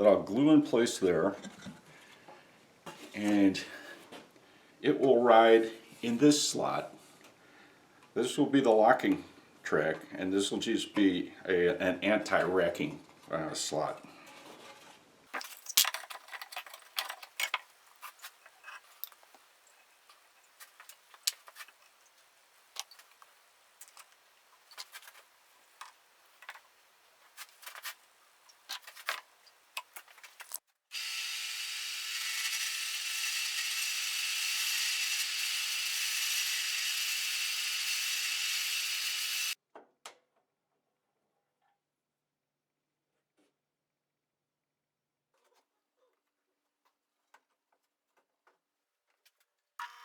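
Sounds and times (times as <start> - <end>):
tools being handled: 15.4 - 19.4, 27.3 - 30.6
power tool running: 30.9 - 39.6.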